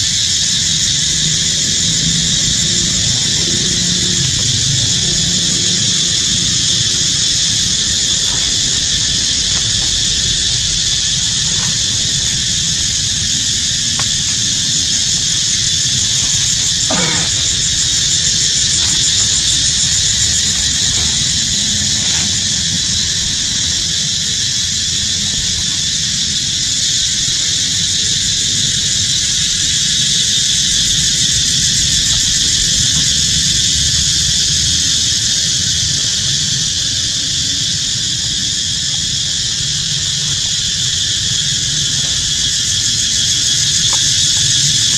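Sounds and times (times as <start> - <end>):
insects chirring: 0.0 - 44.9.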